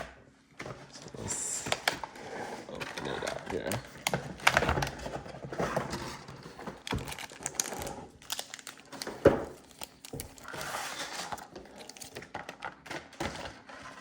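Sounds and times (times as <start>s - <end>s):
packaging crinkling and rustling: 0.6s - 14.0s.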